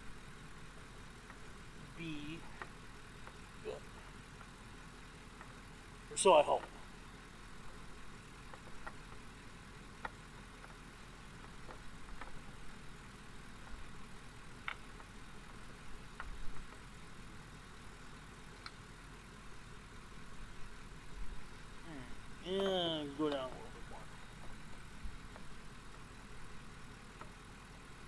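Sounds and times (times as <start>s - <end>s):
truck engine idling: 0.0s - 28.0s
light clicks and taps: 8.5s - 9.2s, 11.4s - 12.5s.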